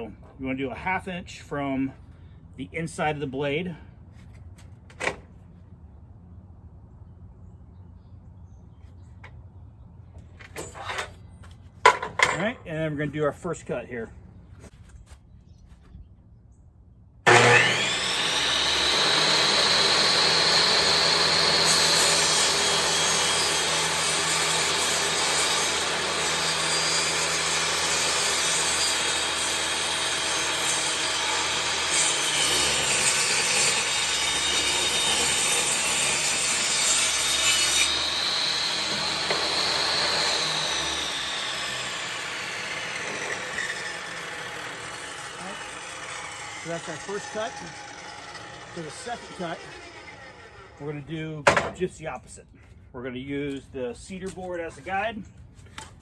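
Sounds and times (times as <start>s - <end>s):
table saw cutting wood: 17.3s - 51.8s.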